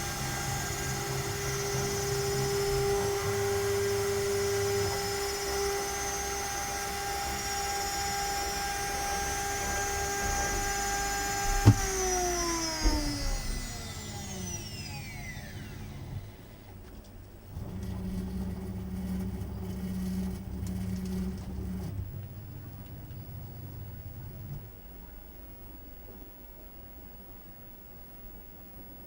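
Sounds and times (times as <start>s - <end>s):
router spindle whine: 0.0s - 16.8s.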